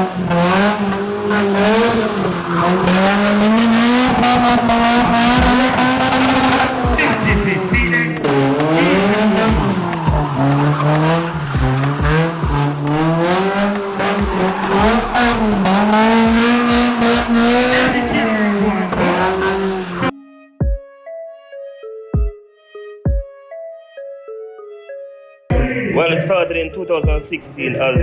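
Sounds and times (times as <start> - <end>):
music with regular beat: 0.0 - 20.0, 20.6 - 20.8, 22.2 - 22.4, 23.1 - 23.3, 25.5 - 25.9, 27.0 - 27.4
car engine revving hard: 0.0 - 20.1
tyres squealing: 0.0 - 20.1.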